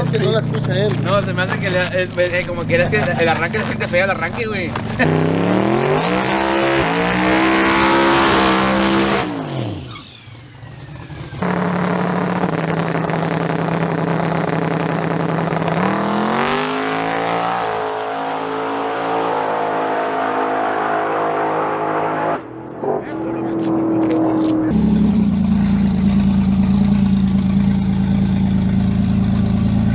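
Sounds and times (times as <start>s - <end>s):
engine running at steady pitch: 0.0s - 18.1s, 20.5s - 29.9s
truck engine revving: 0.0s - 29.9s.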